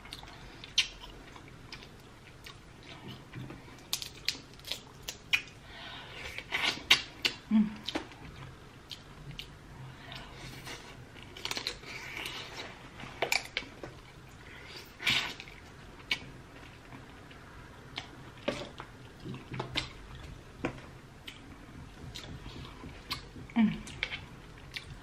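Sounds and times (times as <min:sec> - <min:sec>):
wet chewing and smacking: 0:06.5 - 0:25.0.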